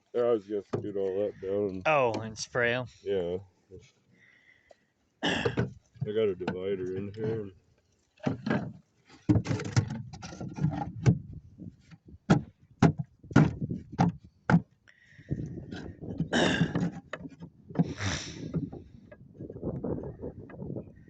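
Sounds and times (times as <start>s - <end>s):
wooden frames scraping: 8.2s - 20.3s
sharp wooden knocks: 9.3s - 11.2s, 12.3s - 19.2s.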